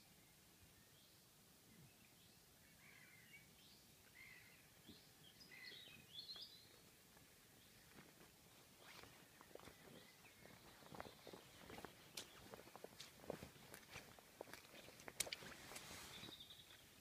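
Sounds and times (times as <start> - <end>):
faint bird chirps: 0.0 - 7.0, 8.8 - 12.8, 16.0 - 17.0.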